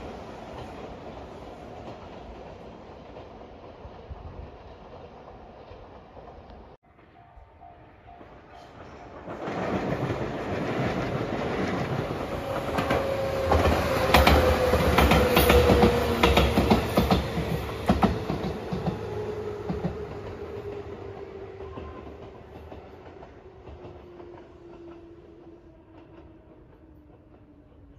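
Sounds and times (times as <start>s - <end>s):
electric train rumble: 0.0s - 27.9s
wheels clacking over rail joints: 8.6s - 25.2s.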